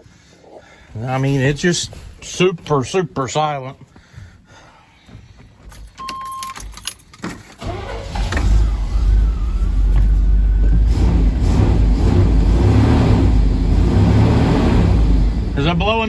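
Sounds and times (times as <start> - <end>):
short beep: 6.0 - 6.6
truck engine starting and running: 7.4 - 16.0.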